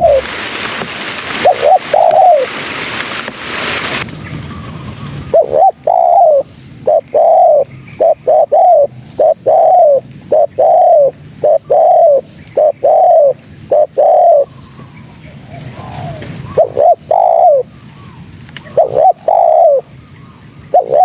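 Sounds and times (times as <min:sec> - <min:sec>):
dove cooing: 0:00.0 - 0:00.7, 0:01.3 - 0:02.8, 0:04.0 - 0:21.0.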